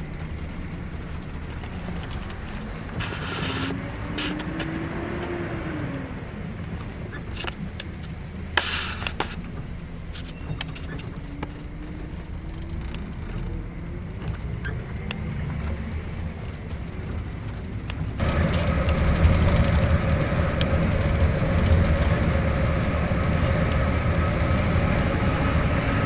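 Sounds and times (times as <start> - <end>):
bus engine drone: 0.0 - 26.0
road noise: 0.0 - 26.0
short hissing bursts: 3.0 - 4.4, 8.6 - 9.4
rattles: 18.2 - 26.0.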